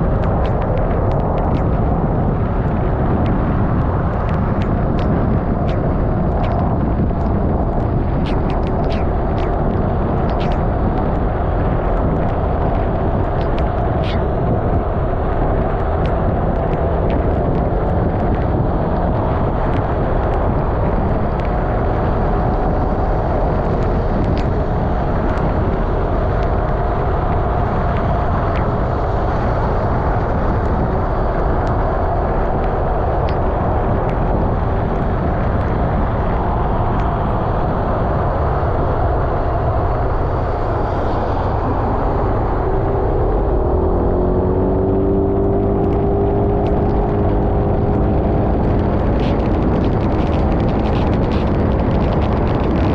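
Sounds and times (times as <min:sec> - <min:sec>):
scooter engine drone: 0:00.0 - 0:52.9
wind and road noise: 0:00.0 - 0:52.9
small ticks: 0:04.2 - 0:11.2.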